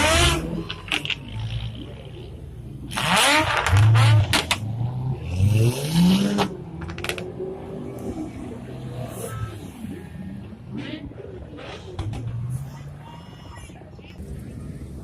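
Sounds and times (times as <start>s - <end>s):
sports car engine revving: 2.9s - 6.6s.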